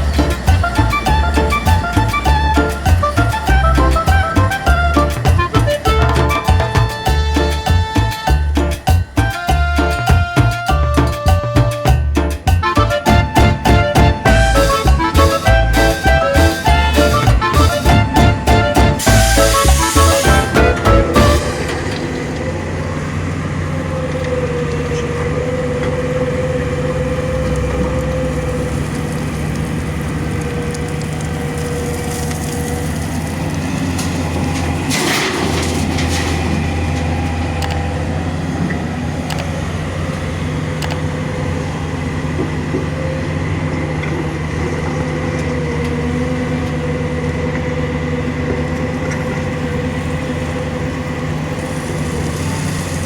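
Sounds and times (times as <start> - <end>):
constant machine whine: 0.0 - 53.0
heavy machinery engine drone: 0.0 - 53.0
brief loud noise: 14.0 - 22.5.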